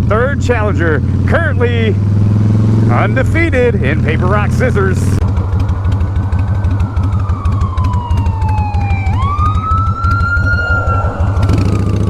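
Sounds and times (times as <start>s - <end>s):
motorcycle engine idling: 0.0s - 10.5s, 11.2s - 12.0s
emergency siren wailing: 5.2s - 12.0s.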